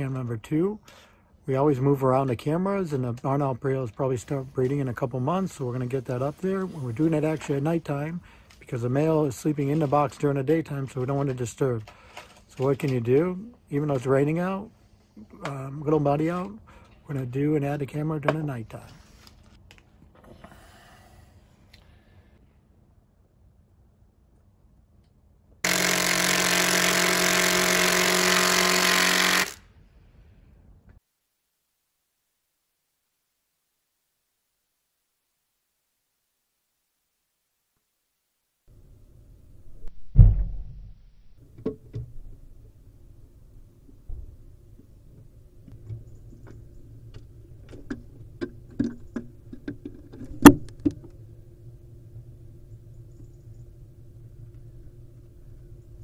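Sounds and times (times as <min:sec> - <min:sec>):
power tool running: 0:25.6 - 0:29.6
steady low hum: 0:38.7 - 0:56.0
sharp clicks and knocks: 0:45.2 - 0:51.2.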